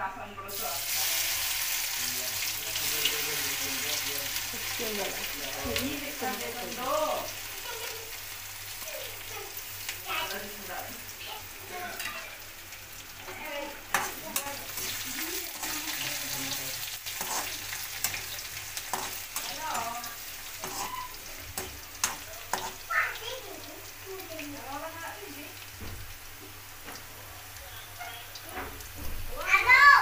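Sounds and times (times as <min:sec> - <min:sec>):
vegetables sizzling in oil: 0:00.5 - 0:30.0
metal spoon scraping a pan: 0:13.9 - 0:22.9.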